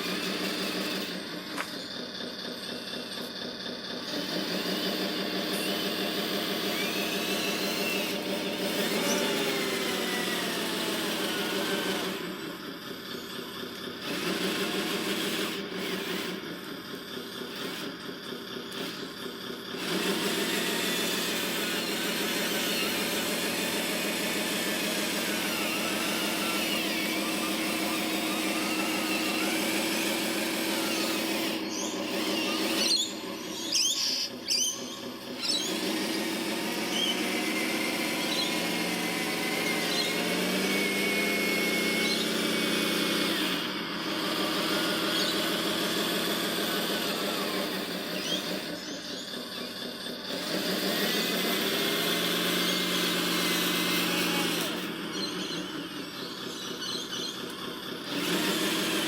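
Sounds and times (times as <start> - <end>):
small electric motors whining: 0.0 - 59.0.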